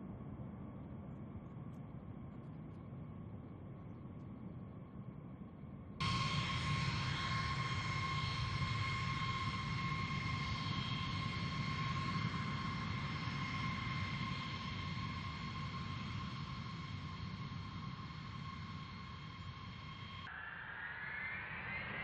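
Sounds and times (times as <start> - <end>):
jet engines whining: 6.0 - 22.0.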